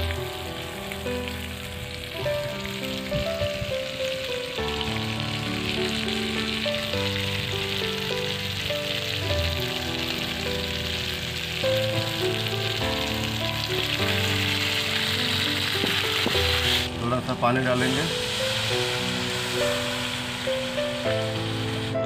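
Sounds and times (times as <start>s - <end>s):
background music with held notes: 0.0s - 22.0s
chicken sizzling in a pan: 0.0s - 22.0s.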